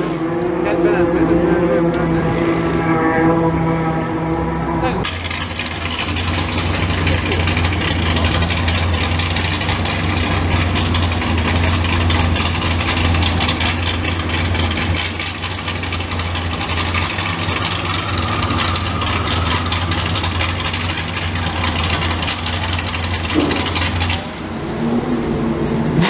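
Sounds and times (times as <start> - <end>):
outboard engine rattling: 4.4 - 24.7
second engine note: 14.9 - 26.0.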